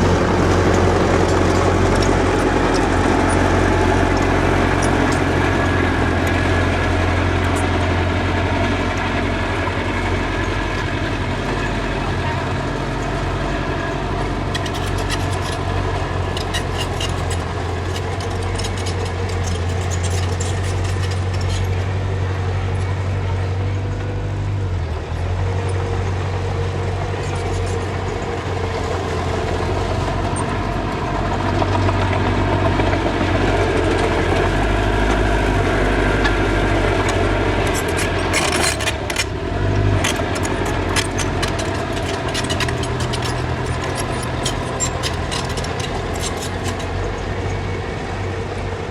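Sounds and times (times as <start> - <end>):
diesel engine of heavy machinery: 0.0 - 48.9
metallic clicks and clanks: 14.2 - 22.0, 35.0 - 47.6.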